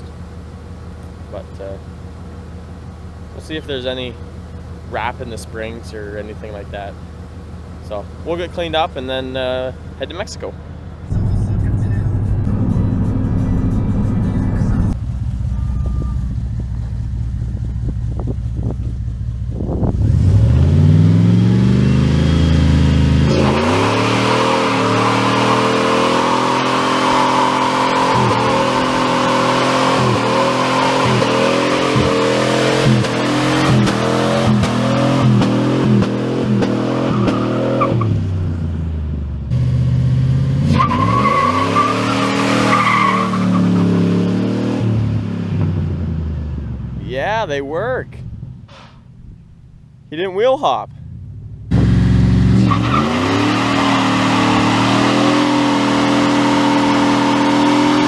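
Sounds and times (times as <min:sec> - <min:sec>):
pickup truck engine revving: 0:10.9 - 0:47.6, 0:51.0 - 0:58.0
tires spinning and squealing: 0:19.8 - 0:38.2, 0:40.6 - 0:45.1, 0:51.7 - 0:58.0.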